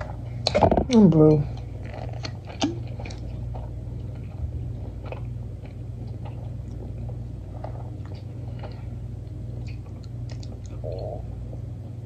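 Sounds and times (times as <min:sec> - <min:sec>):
steady low hum: 0:00.0 - 0:12.0
soft mouth clicks chewing: 0:05.0 - 0:11.2.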